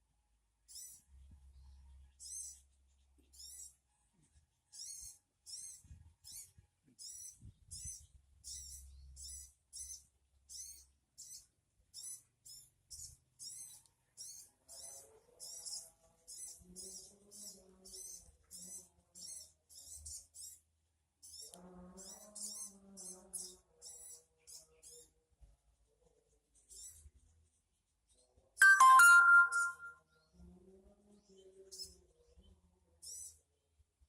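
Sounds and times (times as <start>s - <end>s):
high wavering bird calls: 28.6s - 29.9s.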